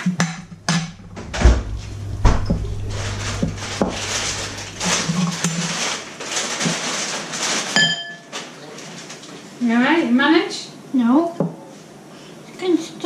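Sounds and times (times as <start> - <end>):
heavy thumps: 0.0 - 5.4
low steady hum: 0.0 - 6.0.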